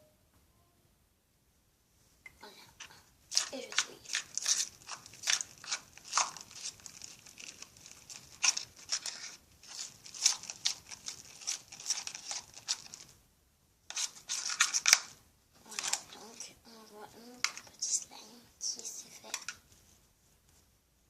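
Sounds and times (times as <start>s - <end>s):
spoon stirring slime: 2.3s - 13.2s, 13.9s - 19.8s.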